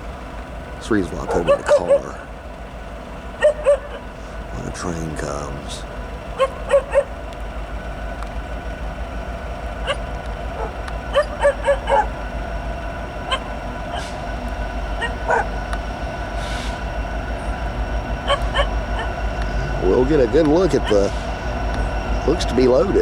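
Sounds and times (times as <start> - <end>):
steady low rumble: 0.0 - 23.0
dog barking and yipping: 1.2 - 2.2, 3.4 - 4.1, 6.4 - 7.2, 9.8 - 12.2, 13.3 - 14.2, 15.0 - 15.6, 18.2 - 19.2.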